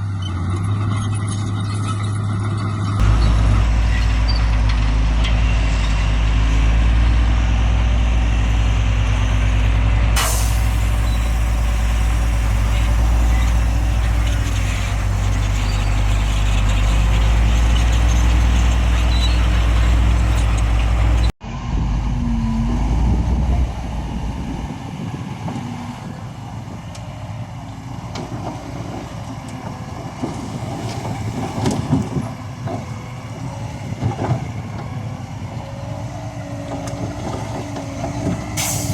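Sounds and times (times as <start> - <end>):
heavy diesel engine running: 0.0 - 38.9
sharp hiss: 10.2 - 15.6
clanks and knocks: 28.1 - 33.0.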